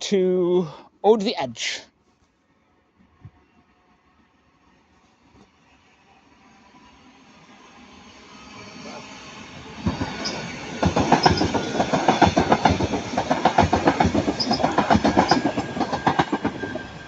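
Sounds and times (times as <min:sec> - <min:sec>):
train wheels clicking over rail joints: 0:09.8 - 0:17.0.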